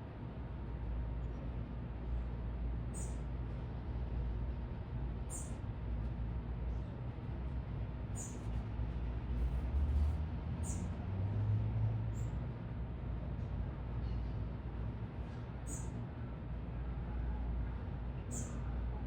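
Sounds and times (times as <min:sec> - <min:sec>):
city traffic rumble: 0:00.0 - 0:19.0
small birds chirping: 0:02.9 - 0:03.2, 0:05.3 - 0:05.6, 0:08.2 - 0:08.5, 0:10.6 - 0:10.9, 0:15.7 - 0:16.0, 0:18.2 - 0:18.7.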